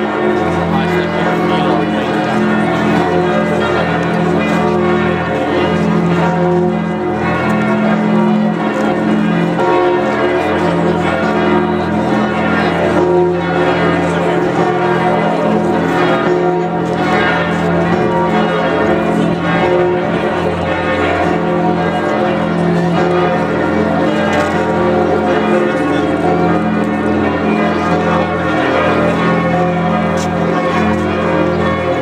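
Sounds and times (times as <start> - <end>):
church bells pealing: 0.0 - 32.0.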